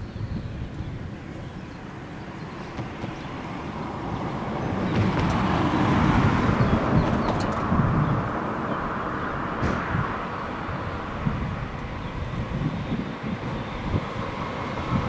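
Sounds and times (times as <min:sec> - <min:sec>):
train rolling noise: 0:02.6 - 0:07.8.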